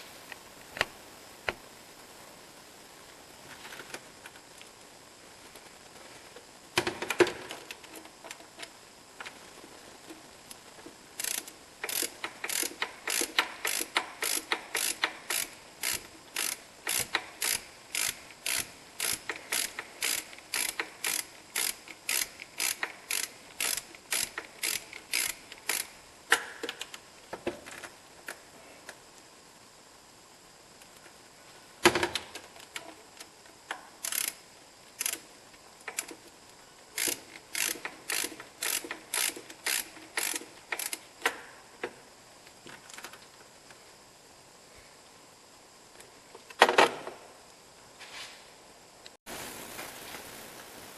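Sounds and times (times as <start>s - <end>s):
ratchet wrench clicking: 11.2s - 26.9s, 34.0s - 34.4s, 35.0s - 35.2s, 35.8s - 36.2s, 37.0s - 41.3s.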